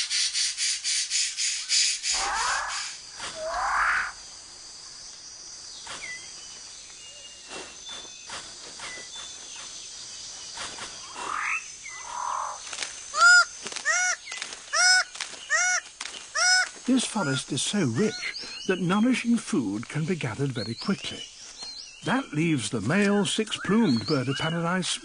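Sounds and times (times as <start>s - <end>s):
high insect drone: 0.0s - 25.0s
swooping animal calls: 2.1s - 4.2s, 10.6s - 18.4s.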